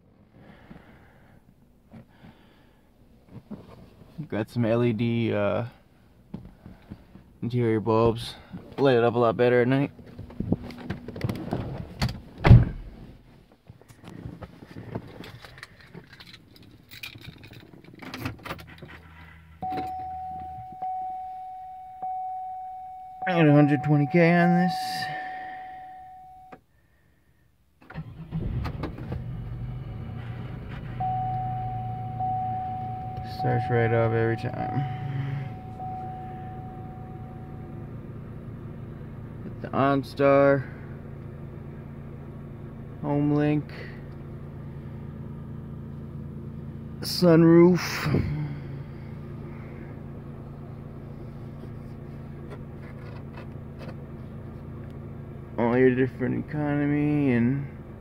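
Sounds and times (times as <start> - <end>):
car engine starting and idling: 0.0 - 58.0
electronic chime tone: 19.6 - 24.7, 25.3 - 26.5, 31.0 - 37.7
car engine idling: 29.4 - 58.0.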